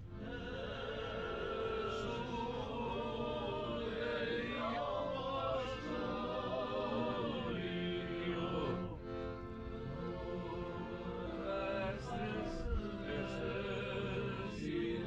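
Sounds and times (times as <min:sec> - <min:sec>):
choir singing chant: 0:00.0 - 0:15.0.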